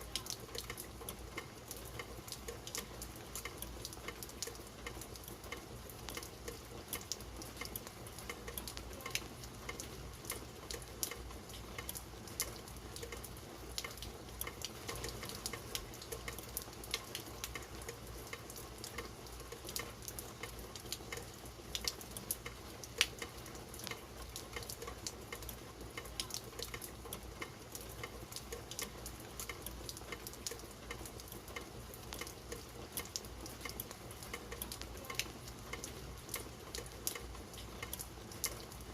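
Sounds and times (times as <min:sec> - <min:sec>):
rain hiss: 0:00.0 - 0:38.9
raindrops ticking: 0:00.0 - 0:38.9.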